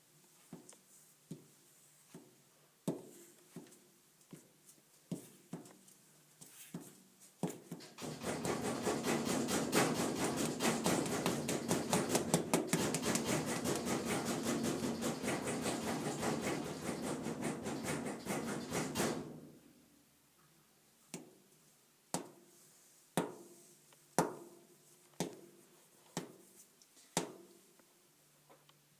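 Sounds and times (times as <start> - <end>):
furnace clicking rattle: 8.0 - 19.2.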